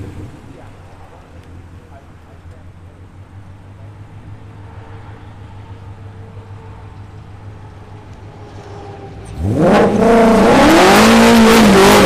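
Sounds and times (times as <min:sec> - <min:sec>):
car engine accelerating hard: 0:08.6 - 0:12.0.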